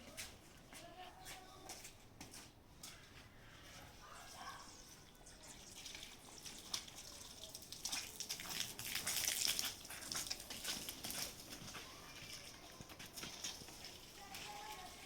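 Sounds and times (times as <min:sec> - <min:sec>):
water splashing and trickling: 0:04.3 - 0:15.0
small clicks and drips: 0:04.8 - 0:14.9.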